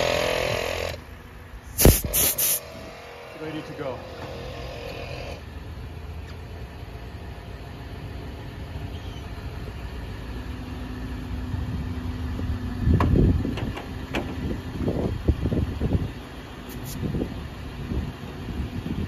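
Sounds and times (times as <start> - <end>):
air compressor running: 0.0 - 1.0, 1.7 - 5.5
burst of air: 1.7 - 2.7.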